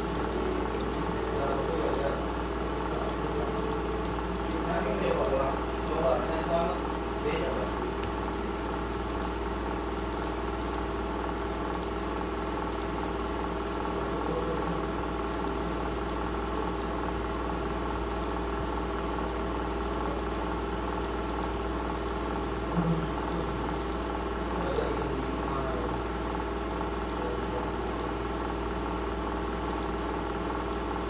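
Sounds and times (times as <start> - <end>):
computer mouse clicking: 0.0 - 0.8, 1.7 - 2.0, 2.9 - 6.8, 9.1 - 9.4, 10.1 - 10.9, 11.7 - 12.0, 12.7 - 13.0, 15.3 - 17.0, 18.1 - 18.4, 20.1 - 22.2, 23.2 - 24.0, 24.6 - 24.9, 26.9 - 27.2, 27.8 - 28.1, 29.6 - 30.0, 30.6 - 30.9
steady electrical hum: 0.0 - 31.0.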